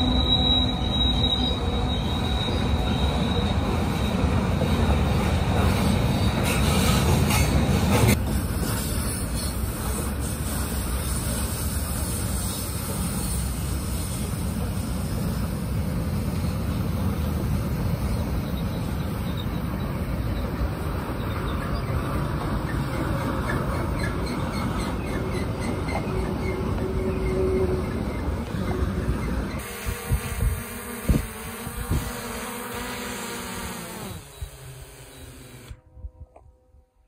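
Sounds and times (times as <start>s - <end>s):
steel wheels squealing: 0.0s - 14.3s, 18.0s - 29.7s
freight train rolling past: 0.0s - 29.9s.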